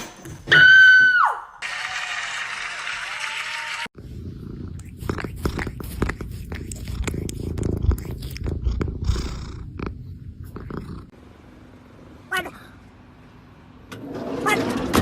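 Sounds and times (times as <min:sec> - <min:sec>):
cat purring: 0:04.0 - 0:11.2.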